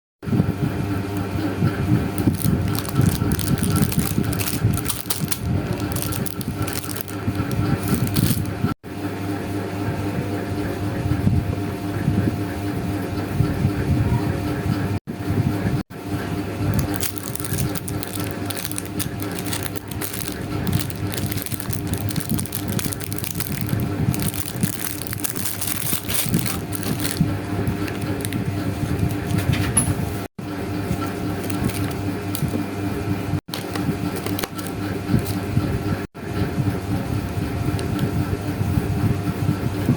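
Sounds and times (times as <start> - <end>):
paper rustling and crinkling: 2.1 - 8.6, 16.7 - 29.7, 30.9 - 32.6, 33.5 - 35.5.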